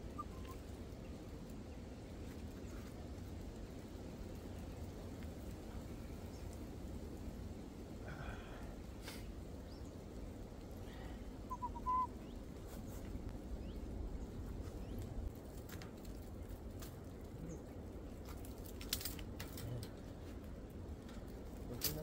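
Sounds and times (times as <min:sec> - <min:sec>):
low outdoor rumble: 0:00.0 - 0:22.0
short bird call: 0:11.5 - 0:12.2.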